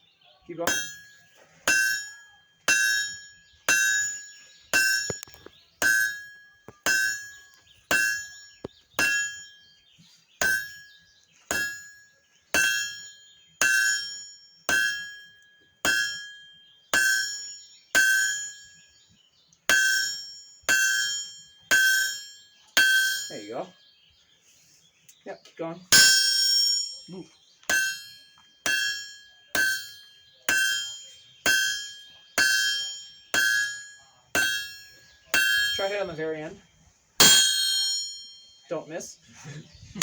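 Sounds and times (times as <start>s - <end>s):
hammer striking hot iron: 0.7s - 9.5s, 10.4s - 12.0s, 12.6s - 18.8s, 19.7s - 23.5s, 25.9s - 36.2s, 37.2s - 38.4s
anvil ringing: 0.7s - 9.6s, 10.4s - 18.8s, 19.7s - 23.8s, 25.9s - 36.3s, 37.2s - 38.7s.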